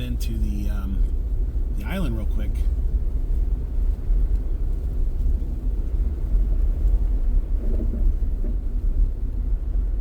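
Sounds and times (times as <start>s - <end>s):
car driving heard from inside: 0.0s - 10.0s.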